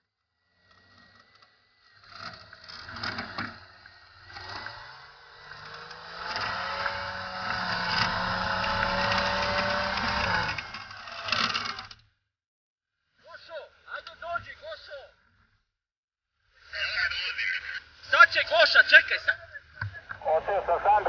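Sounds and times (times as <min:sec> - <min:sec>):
vehicle engine revving: 0:00.4 - 0:11.9.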